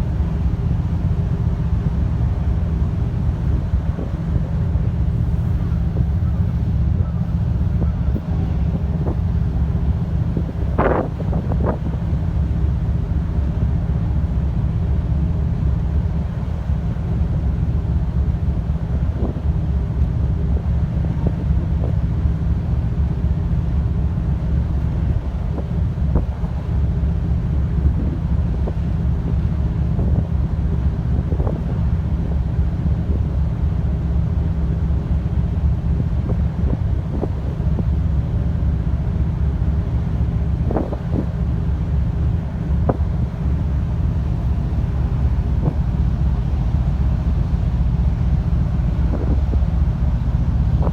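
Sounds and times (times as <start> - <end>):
ship machinery low rumble: 0.0 - 50.9
wind buffeting microphone: 0.0 - 50.9.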